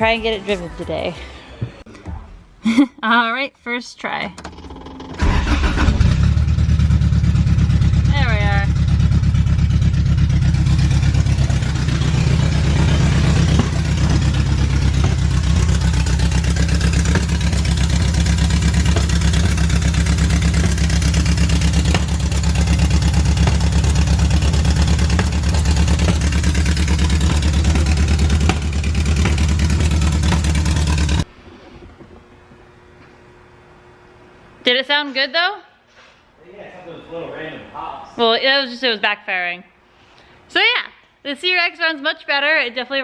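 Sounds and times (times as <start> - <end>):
exhaust pops: 4.4 - 32.3
car engine idling: 4.5 - 31.3.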